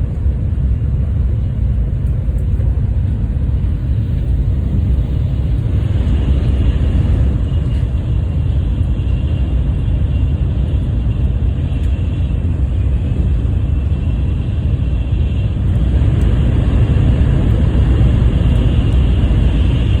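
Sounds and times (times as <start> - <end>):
train rumbling at speed: 0.0 - 20.0.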